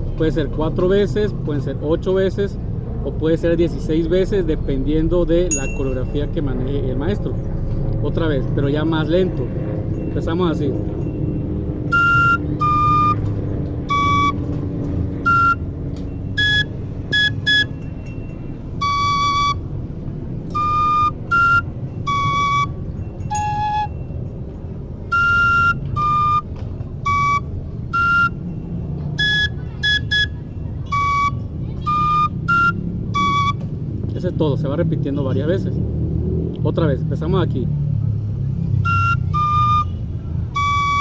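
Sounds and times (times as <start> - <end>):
flute melody: 11.0 - 33.9, 38.6 - 41.0.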